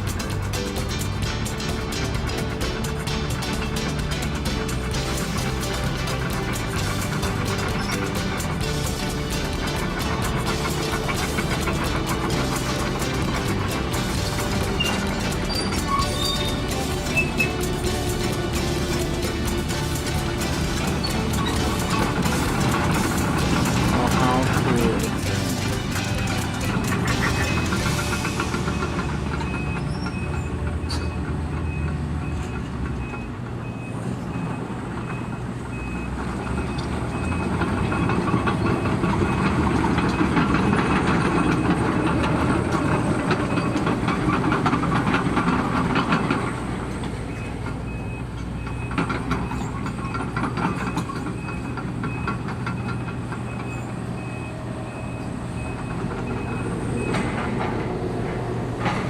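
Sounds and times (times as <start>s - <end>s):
metal scraping and clanking: 0.0s - 33.8s
excavator diesel engine under load: 0.0s - 59.0s.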